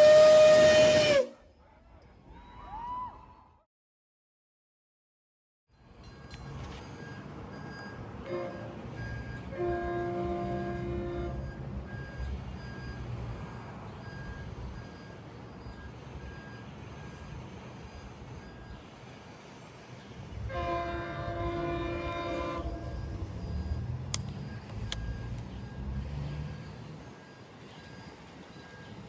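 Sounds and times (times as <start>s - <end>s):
train horn blast: 0.0s - 1.3s, 8.2s - 11.5s, 20.4s - 23.0s
low rumble of train: 0.0s - 3.5s, 5.7s - 29.0s
sharp clicks: 24.1s - 25.5s.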